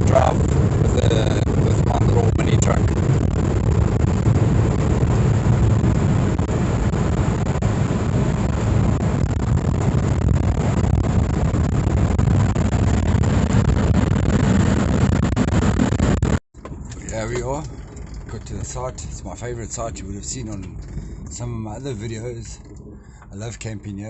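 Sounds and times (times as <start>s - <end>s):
mini truck engine running: 0.0s - 19.2s
road noise: 0.0s - 24.0s.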